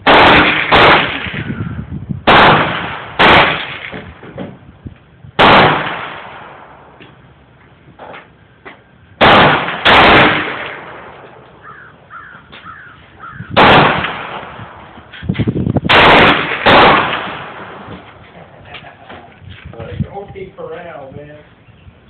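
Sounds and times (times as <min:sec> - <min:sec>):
pistol shots with echo: 0:00.0 - 0:01.6, 0:02.3 - 0:04.1, 0:05.4 - 0:07.0, 0:09.2 - 0:11.2, 0:13.6 - 0:14.8, 0:15.9 - 0:17.9.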